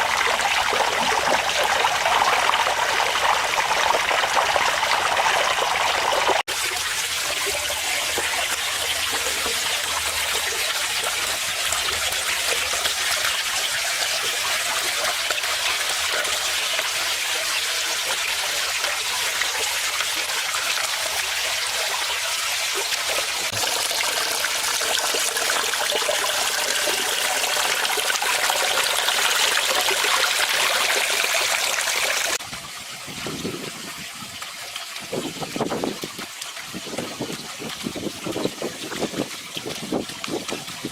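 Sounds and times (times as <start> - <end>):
waterfall trickling into pond: 0.0 - 40.9.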